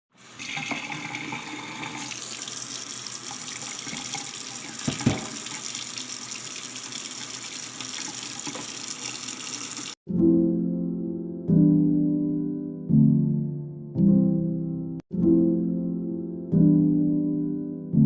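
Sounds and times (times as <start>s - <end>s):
tap running into sink: 3.3s - 10.0s.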